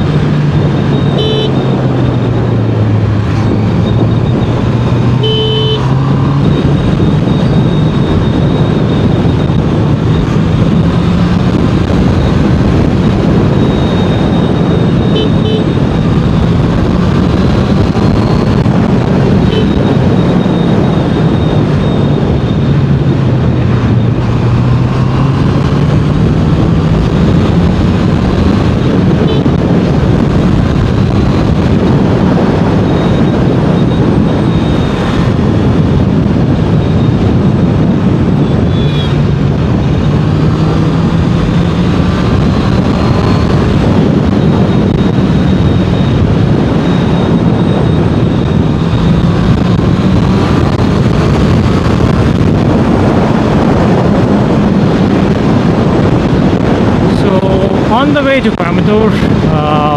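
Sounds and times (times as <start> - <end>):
motorcycle engine cruising: 0.0 - 59.9
wind rush over helmet: 0.0 - 59.9.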